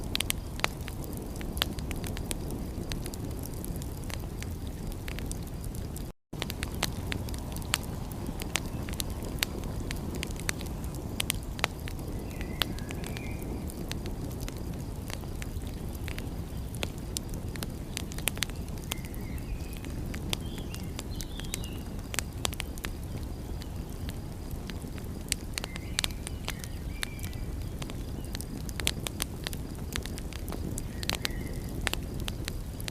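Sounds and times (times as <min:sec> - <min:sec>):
steady low rumble: 0:00.0 - 0:17.7
wood fire crackling and popping: 0:00.0 - 0:32.9.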